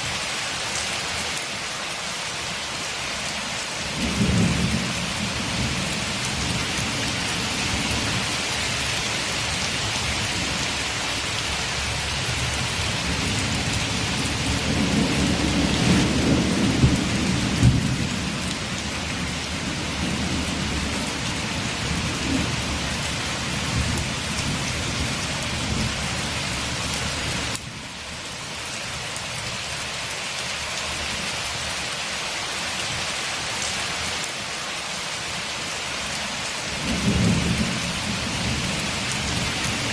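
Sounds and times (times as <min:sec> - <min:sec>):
rain on a window: 0:00.0 - 0:39.9
low roll of thunder: 0:03.9 - 0:08.2, 0:13.0 - 0:21.0, 0:36.8 - 0:39.9.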